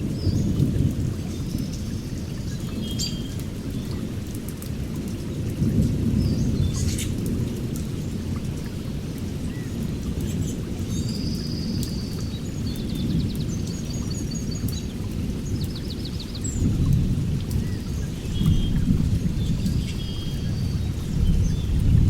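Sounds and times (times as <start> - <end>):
birds chirping: 9.4 - 16.8, 17.4 - 22.0.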